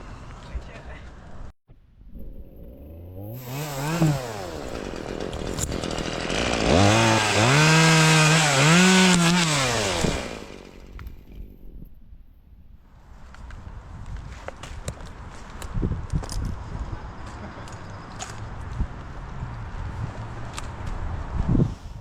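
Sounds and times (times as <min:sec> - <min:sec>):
chainsaw cutting: 0:02.6 - 0:11.6.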